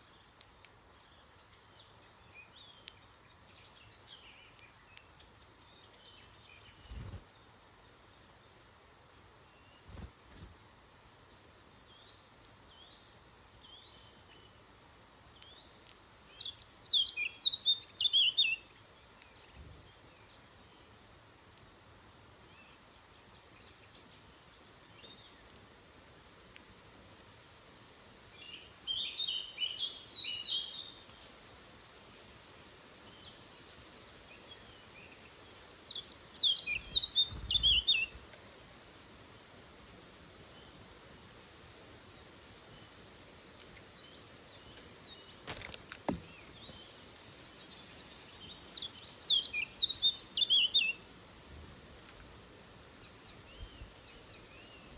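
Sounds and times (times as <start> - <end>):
faint bird chirps: 0.0 - 8.8, 11.3 - 21.2, 27.5 - 38.4, 43.6 - 51.1
songbird singing rapid high notes: 35.9 - 38.1.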